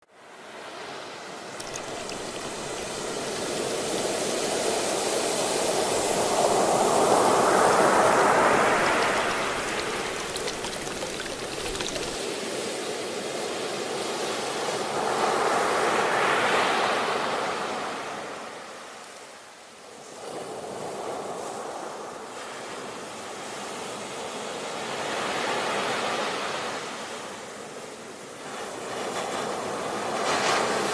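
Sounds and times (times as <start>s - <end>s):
ocean waves washing up shore: 1.6s - 12.2s.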